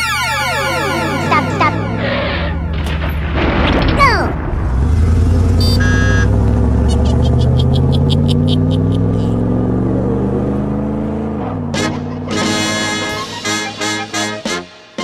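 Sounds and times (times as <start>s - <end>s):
cartoon engine revving: 0.0s - 2.7s, 5.0s - 10.0s.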